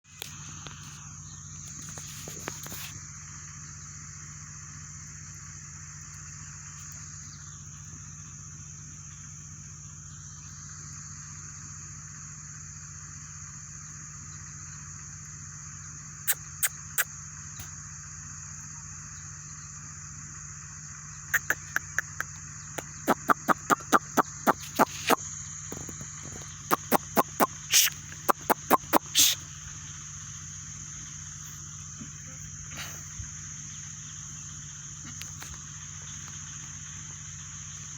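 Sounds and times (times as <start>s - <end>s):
bird chip calls: 16.3s - 17.7s, 21.2s - 37.9s.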